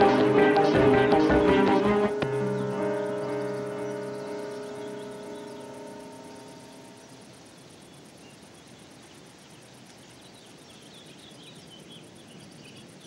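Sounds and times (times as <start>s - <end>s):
background music sustained tones: 0.0s - 7.3s
faint outdoor ambience: 0.0s - 13.0s.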